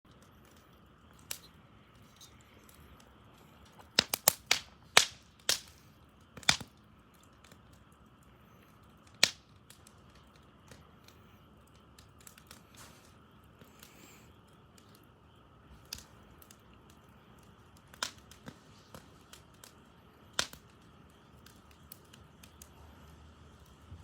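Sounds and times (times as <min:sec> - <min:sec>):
wood fire crackling: 0:00.0 - 0:24.0
sharp pops from burning wood: 0:00.1 - 0:23.9
faint steady hiss: 0:00.1 - 0:24.0.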